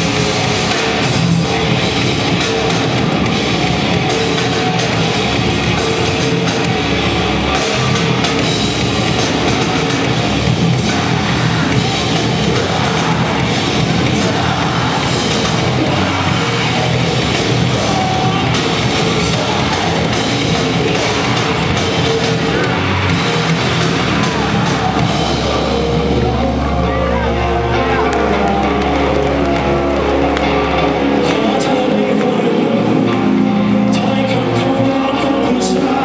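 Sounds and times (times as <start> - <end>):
distorted guitars: 0.0 - 36.0
drums: 0.0 - 36.0
heavy rock music: 0.0 - 36.0
person yelling singing: 9.0 - 30.3, 31.0 - 36.0.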